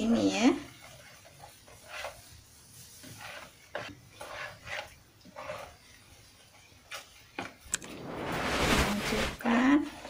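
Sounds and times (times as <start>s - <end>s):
hand stirring batter in bowl: 0.0s - 7.8s.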